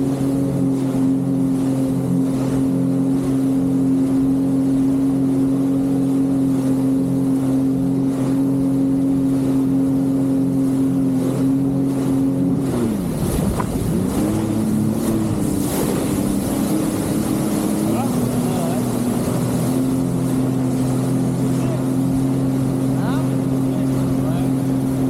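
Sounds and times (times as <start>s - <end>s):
jet ski engine running: 0.0s - 25.0s.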